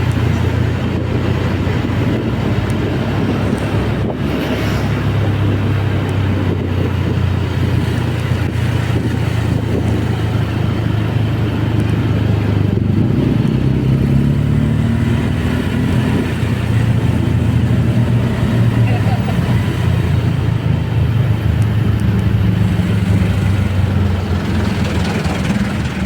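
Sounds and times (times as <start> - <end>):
road and wind noise: 0.0 - 26.0
scooter engine running: 5.3 - 26.0.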